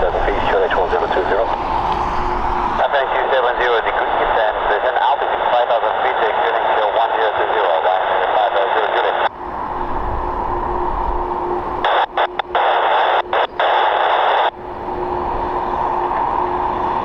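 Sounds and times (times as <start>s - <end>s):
burst of radio hiss: 0.0s - 1.7s
radio static hiss: 0.0s - 9.3s, 11.6s - 14.6s
faint steady tone: 8.5s - 17.0s.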